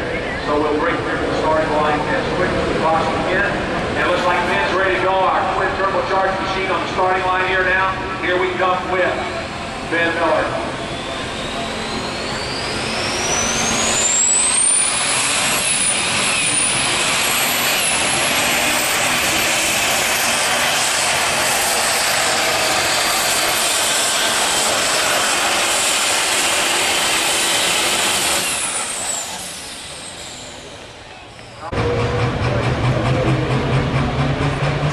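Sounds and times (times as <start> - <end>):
diesel truck engine at full throttle: 0.0 - 34.9
high turbo whine: 0.0 - 34.9.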